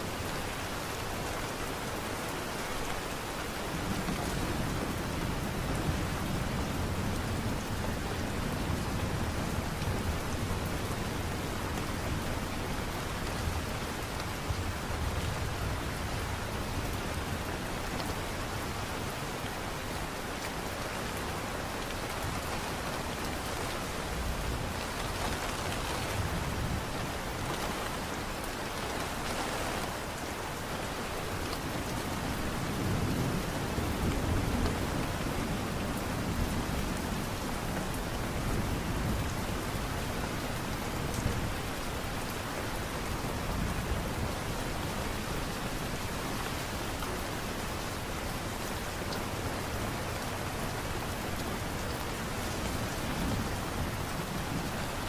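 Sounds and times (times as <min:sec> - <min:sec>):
light rain hissing: 0:18.2 - 0:36.4.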